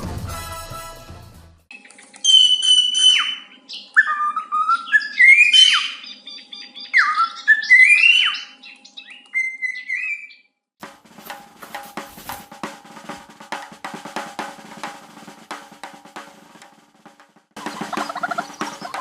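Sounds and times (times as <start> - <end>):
bird whistling sliding notes: 1.8 - 10.4, 17.6 - 19.0.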